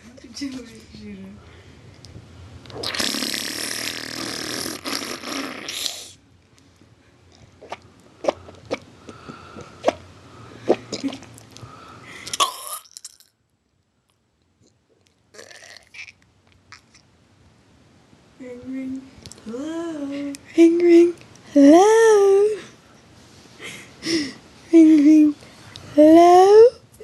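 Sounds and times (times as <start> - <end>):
mouth pops and clicks: 2.0 - 6.0
person making raspy mouth noise: 2.7 - 6.2, 15.4 - 16.2.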